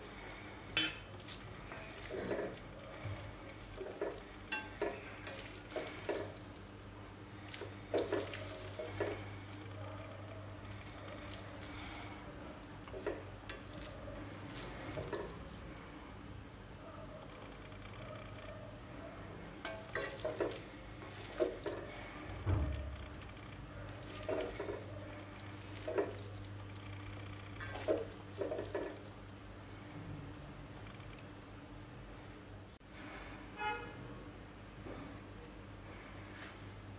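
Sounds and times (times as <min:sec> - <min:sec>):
frying sizzle: 0:00.0 - 0:09.8, 0:19.4 - 0:29.7
spatula scraping a wok: 0:19.7 - 0:22.0.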